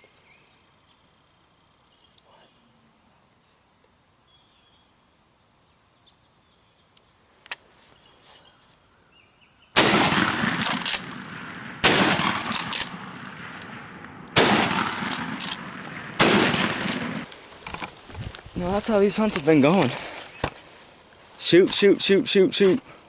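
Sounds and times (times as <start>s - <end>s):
shotgun shots with echo: 9.8s - 17.3s.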